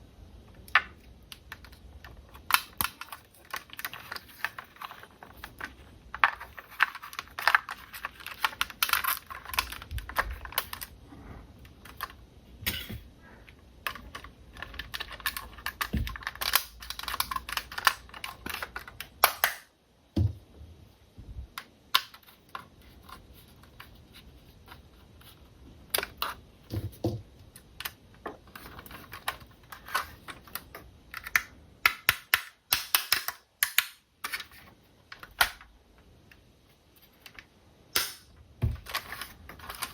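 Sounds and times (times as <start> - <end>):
dull thumps: 20.2 - 20.6.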